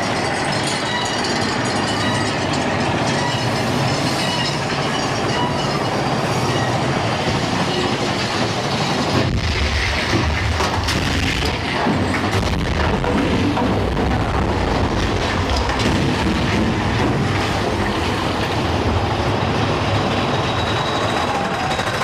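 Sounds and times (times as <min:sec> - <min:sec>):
roller coaster wheels rattling: 0:00.0 - 0:22.0
wheel squeal: 0:00.2 - 0:08.2, 0:20.1 - 0:22.0.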